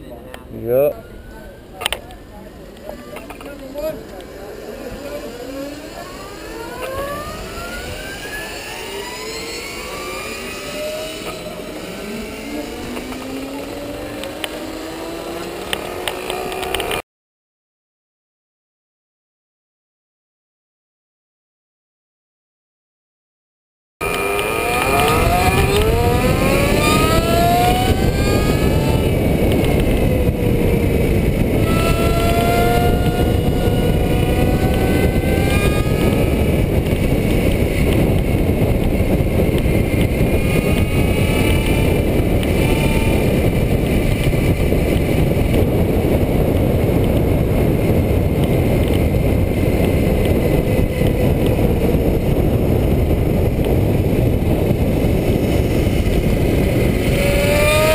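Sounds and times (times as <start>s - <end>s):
electric motor whining: 0.8s - 17.0s, 24.0s - 57.9s
wind rush on microphone: 24.0s - 57.9s.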